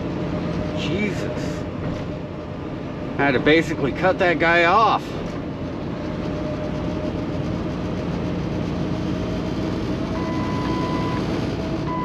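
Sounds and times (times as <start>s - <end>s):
diesel truck engine drone: 0.0s - 12.0s
electronic beep: 10.2s - 11.2s.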